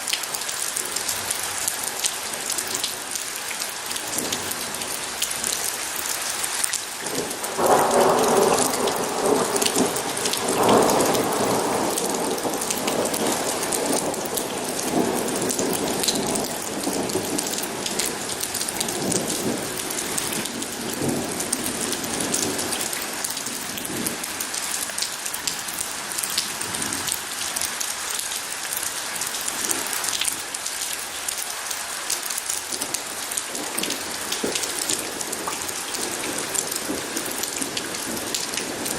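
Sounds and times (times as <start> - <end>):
steady rain falling: 0.0 - 38.9
thunder rumbling: 7.1 - 24.4, 32.8 - 38.9.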